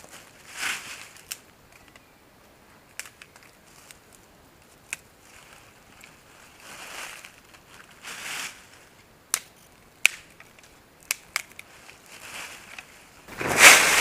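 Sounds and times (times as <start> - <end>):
rustling and crunching: 2.9 - 14.0.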